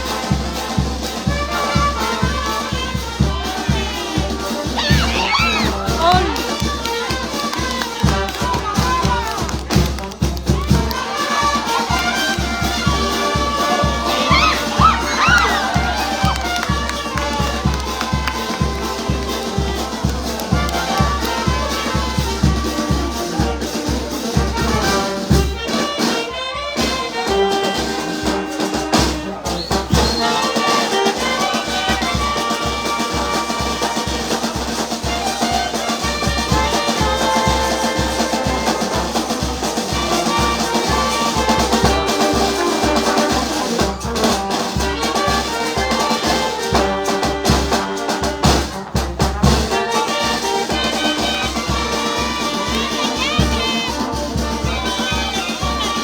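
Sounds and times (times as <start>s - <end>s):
brass band playing: 0.0s - 56.0s
bass drum beat: 3.2s - 23.6s, 36.4s - 54.9s.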